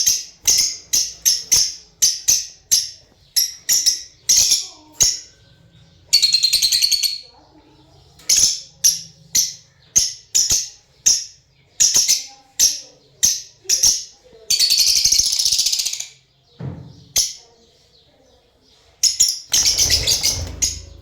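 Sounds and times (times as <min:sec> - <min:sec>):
lovebirds chirping: 0:00.0 - 0:21.0
buzzy bird chattering call: 0:19.6 - 0:21.0.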